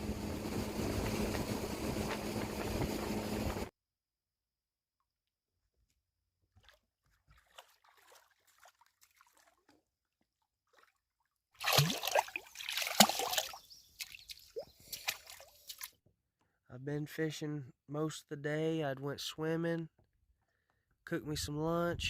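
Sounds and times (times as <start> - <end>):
water sloshing and splashing: 6.5 - 16.0.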